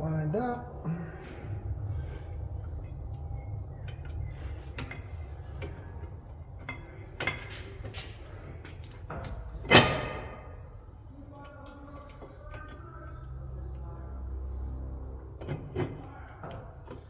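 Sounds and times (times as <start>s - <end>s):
metal parts clinking: 8.8s - 9.9s.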